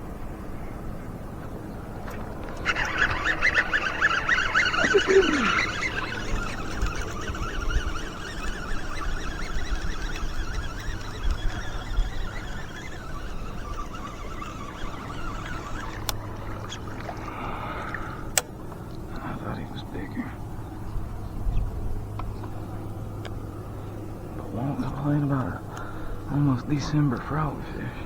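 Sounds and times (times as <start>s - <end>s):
water splashing and trickling: 1.8s - 18.4s
sharp clicks: 2.0s - 18.6s.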